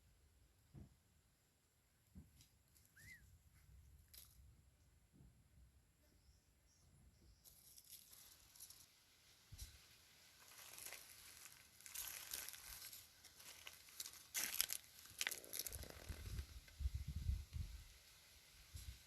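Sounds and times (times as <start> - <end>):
rustling and crinkling: 7.4 - 17.0.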